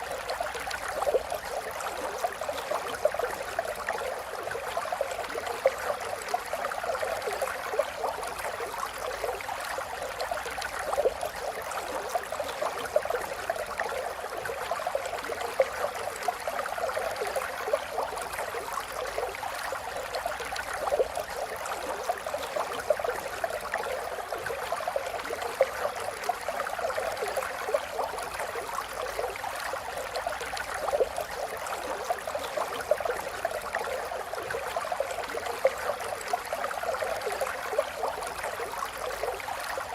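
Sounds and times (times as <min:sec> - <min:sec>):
stream trickling and gurgling: 0:00.0 - 0:39.9.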